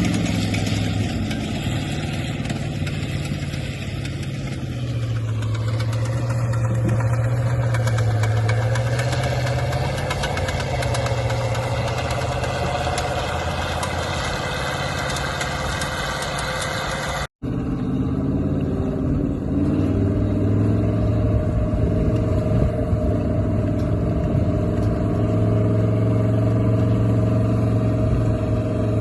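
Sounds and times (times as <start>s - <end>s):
tracked tractor engine running: 0.0s - 29.0s.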